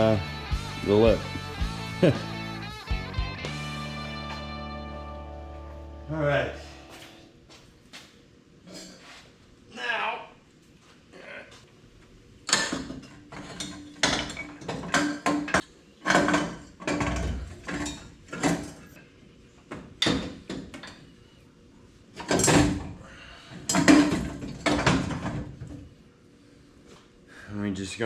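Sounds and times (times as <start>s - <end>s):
metal tools clanking and scraping: 12.5s - 19.0s.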